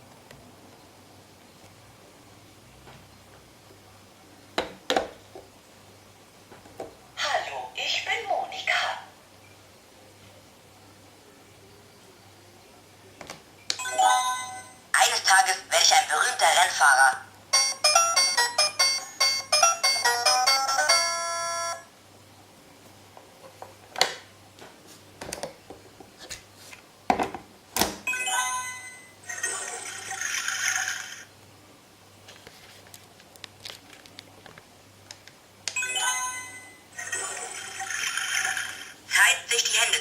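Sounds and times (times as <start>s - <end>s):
electronic toy chime jingle: 13.8s - 14.9s, 17.5s - 21.9s, 28.1s - 31.2s, 35.8s - 38.1s
electronic toy sound effects: 16.1s - 21.9s, 28.1s - 31.3s, 35.8s - 39.0s.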